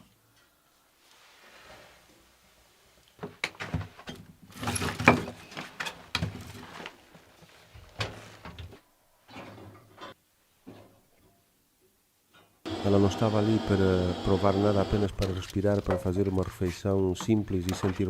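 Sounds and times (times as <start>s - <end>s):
objects knocking and clattering: 3.2s - 6.6s, 15.3s - 16.6s.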